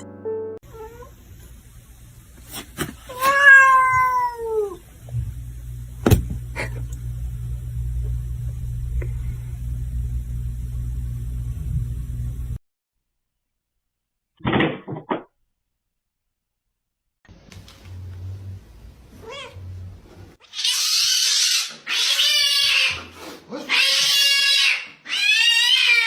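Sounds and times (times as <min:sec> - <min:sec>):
cat meowing: 0:03.1 - 0:04.8, 0:19.2 - 0:19.6
low rumble: 0:05.0 - 0:12.6.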